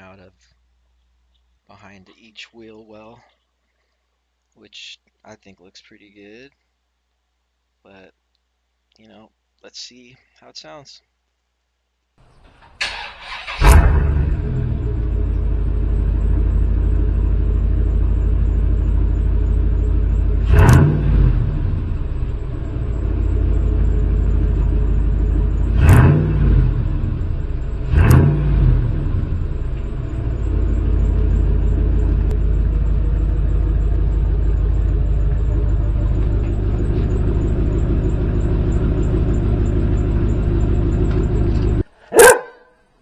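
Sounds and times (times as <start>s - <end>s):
engine idling with deep rumble: 12.3s - 42.4s
engine revving: 12.8s - 42.4s.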